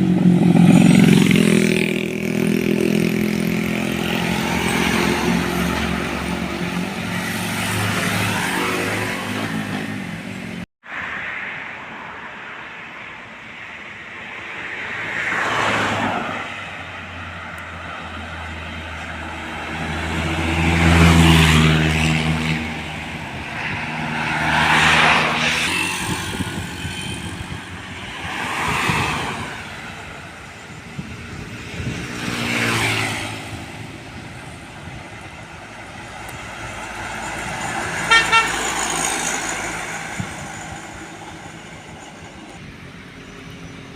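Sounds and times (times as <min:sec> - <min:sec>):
trucks passing: 0:00.0 - 0:43.9
horn toots: 0:37.9 - 0:39.6.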